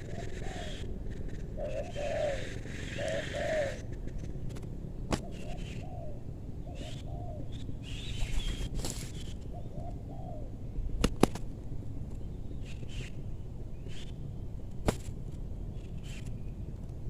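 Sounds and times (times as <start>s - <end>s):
dove cooing: 0.0s - 3.9s, 5.1s - 11.4s
faint small bird chirps: 6.7s - 10.4s, 15.7s - 16.7s.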